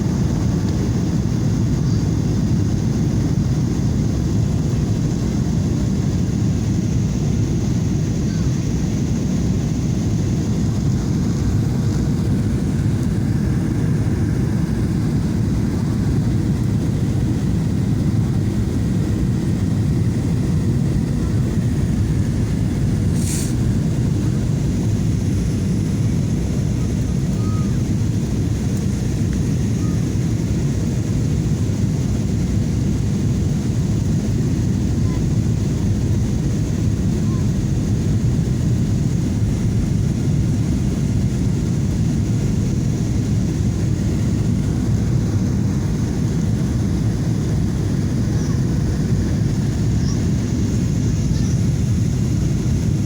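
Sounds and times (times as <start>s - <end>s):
airliner cabin engine roar: 0.0s - 53.0s
brief hiss: 23.1s - 23.6s.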